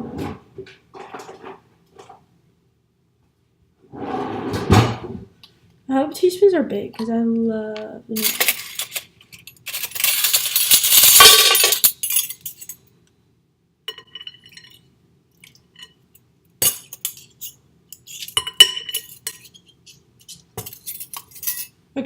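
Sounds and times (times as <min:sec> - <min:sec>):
utensil clinking against glass: 0:16.6 - 0:19.6.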